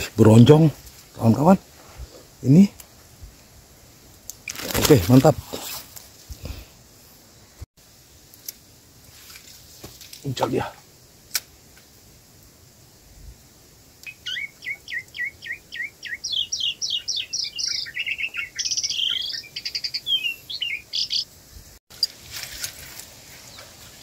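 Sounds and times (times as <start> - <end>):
songbird singing: 13.6 - 22.2, 23.2 - 24.0.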